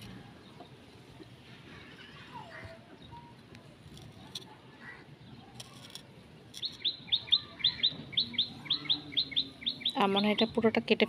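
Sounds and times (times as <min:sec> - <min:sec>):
small bird chirping: 0:06.6 - 0:10.6.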